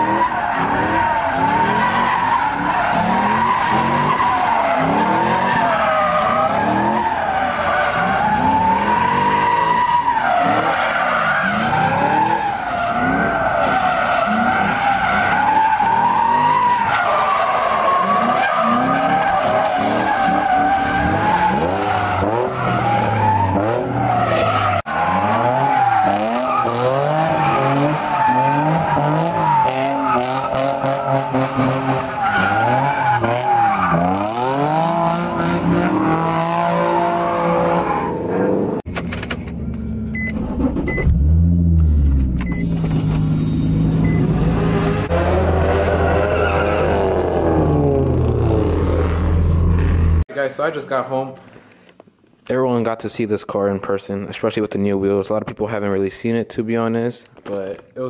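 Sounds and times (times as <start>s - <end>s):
car tires screeching: 0.0s - 38.8s, 39.8s - 50.2s
car engine revving: 10.3s - 50.3s.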